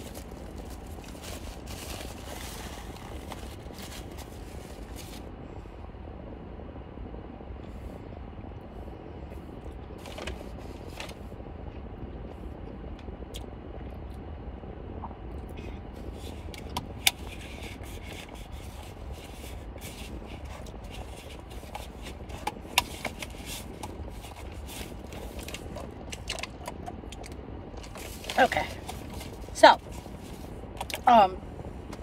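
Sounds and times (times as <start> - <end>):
steady low rumble: 0.0 - 32.0
crunchy chewing: 16.0 - 30.5.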